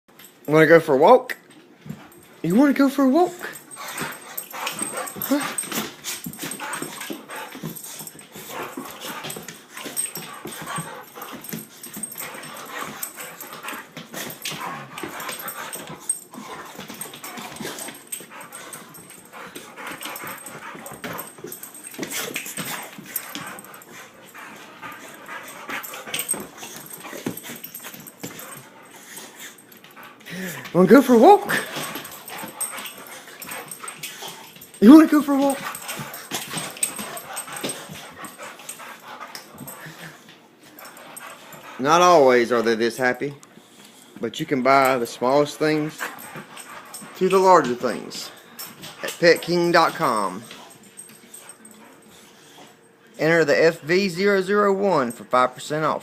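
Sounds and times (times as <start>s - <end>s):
dog making excited noises: 1.9s - 43.2s.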